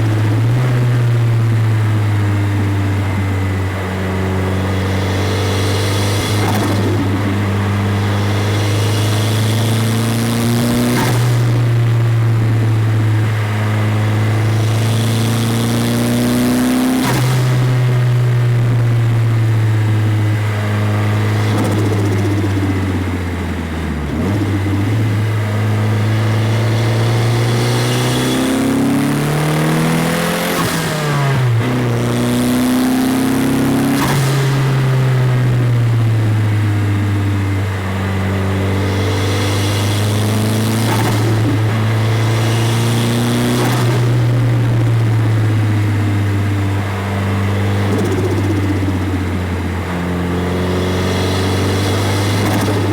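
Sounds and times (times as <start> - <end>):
car engine revving: 0.0 - 52.9.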